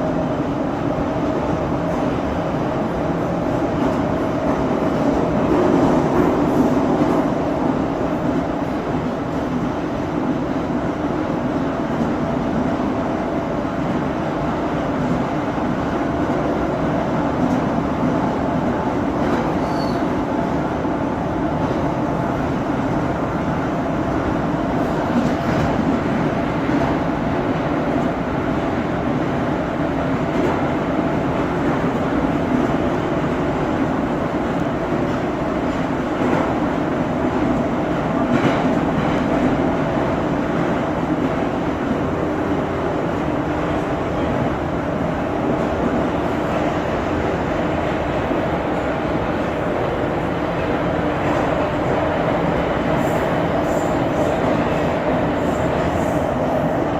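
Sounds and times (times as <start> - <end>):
subway car rolling rumble: 0.0 - 56.9.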